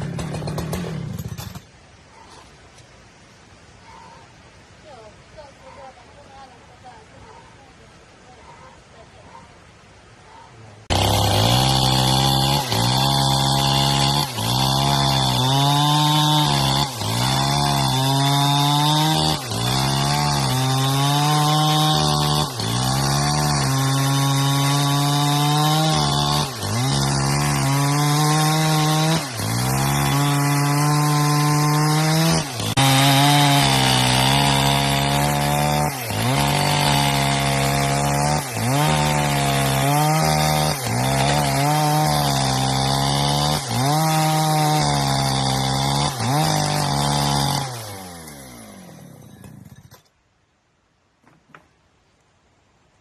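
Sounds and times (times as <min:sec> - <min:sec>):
chainsaw running at high speed: 0:00.0 - 0:01.6, 0:10.9 - 0:50.0.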